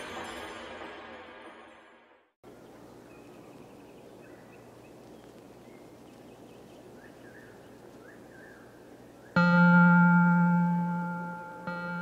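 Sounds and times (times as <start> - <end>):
distant birds calling: 2.4 - 9.6
steady background hiss: 2.5 - 12.0.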